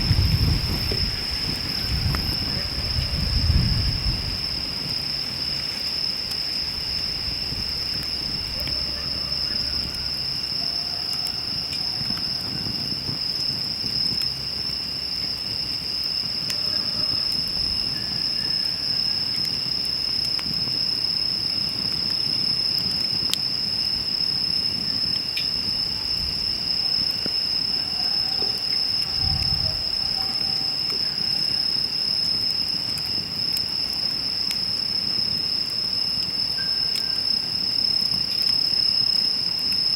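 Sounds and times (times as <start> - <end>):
campfire crackling and popping: 0.0 - 27.8, 28.6 - 39.9
insects trilling: 0.0 - 39.9.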